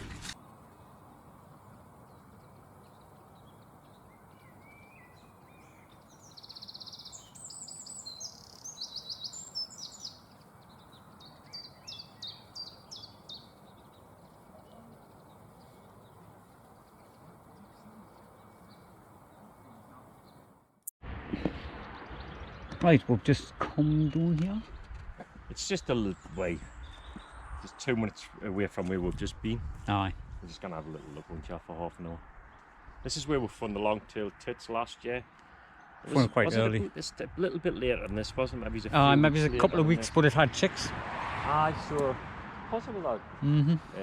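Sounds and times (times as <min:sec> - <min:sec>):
songbird singing: 0:00.4 - 0:20.6, 0:21.5 - 0:29.4, 0:30.4 - 0:40.8.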